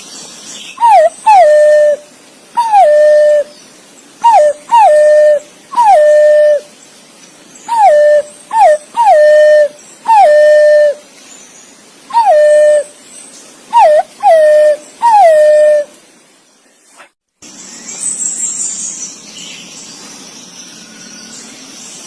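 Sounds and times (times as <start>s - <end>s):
pigeon whistled calls: 0.8s - 2.0s, 2.6s - 3.5s, 4.2s - 6.6s, 7.7s - 11.0s, 12.1s - 12.9s, 13.7s - 15.9s.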